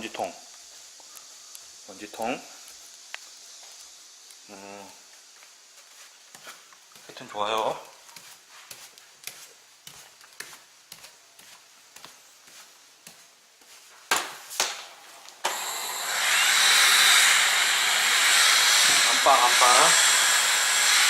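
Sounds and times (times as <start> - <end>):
vacuum cleaner motor hissing: 15.3 - 21.0.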